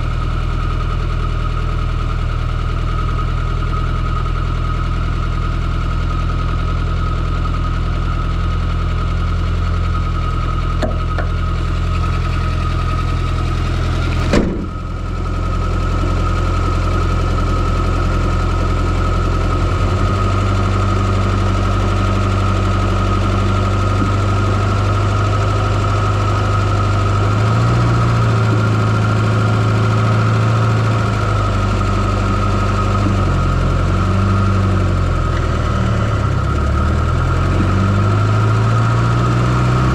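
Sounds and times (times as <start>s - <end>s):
car engine running: 0.0s - 39.9s
sudden sharp sound: 14.2s - 14.9s.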